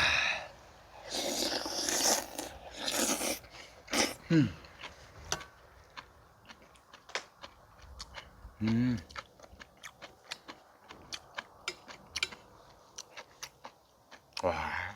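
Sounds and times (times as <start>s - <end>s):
slurping soup: 1.0s - 4.2s
chewing with mouth clicks: 1.1s - 14.5s
person humming mm: 8.6s - 9.1s.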